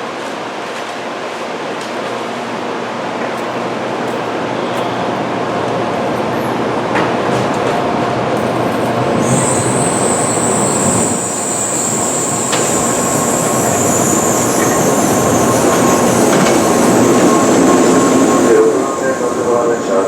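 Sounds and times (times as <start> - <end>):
train rumbling: 0.0 - 20.0
high-pitched squeal: 9.1 - 20.0.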